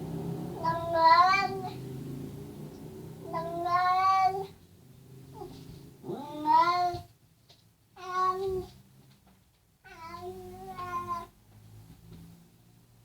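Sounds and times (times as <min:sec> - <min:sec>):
cat meowing: 0:00.6 - 0:01.8, 0:03.2 - 0:04.6, 0:05.4 - 0:07.1, 0:08.0 - 0:08.7, 0:09.9 - 0:11.4.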